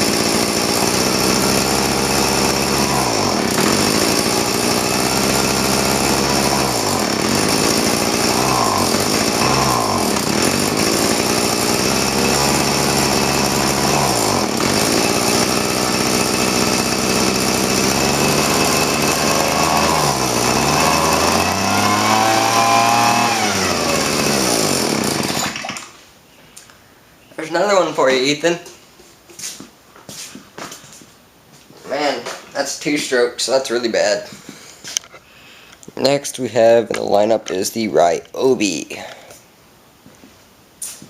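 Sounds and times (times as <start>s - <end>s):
leaf blower engine revving: 0.0s - 25.7s.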